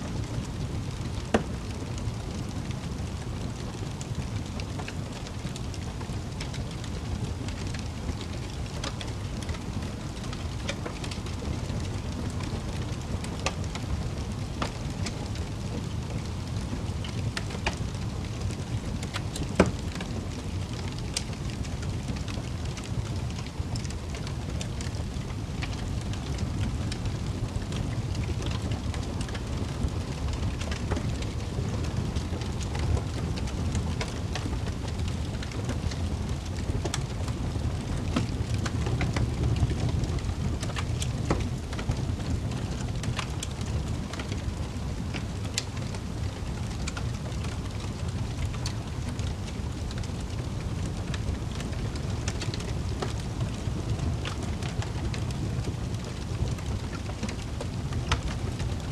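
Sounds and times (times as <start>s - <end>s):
fireplace fire crackling: 0.0s - 58.9s
low rumble of flames: 0.0s - 58.9s
fire pops: 48.4s - 58.4s.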